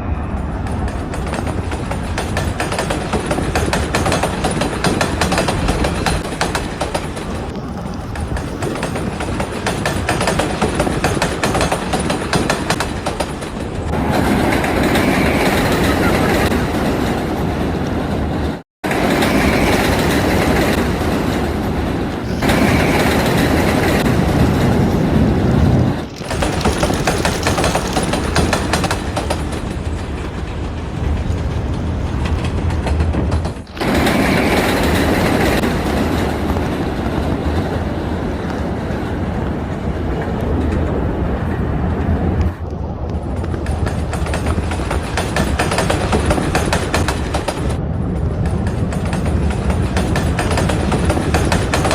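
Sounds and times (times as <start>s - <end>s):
train rumbling clatter on track: 0.0s - 51.9s.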